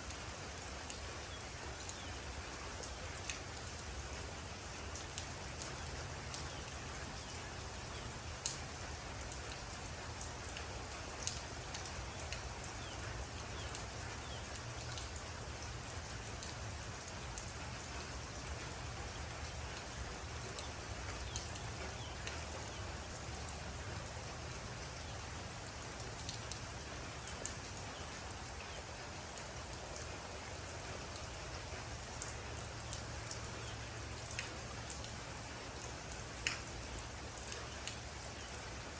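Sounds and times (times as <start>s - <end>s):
raindrops ticking on surface: 0.0s - 38.9s
steady rain: 0.0s - 38.9s.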